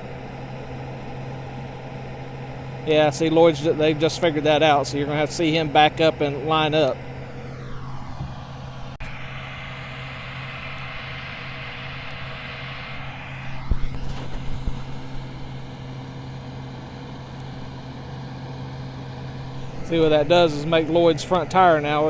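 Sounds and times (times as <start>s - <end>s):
tractor engine and combine running: 0.0s - 22.0s.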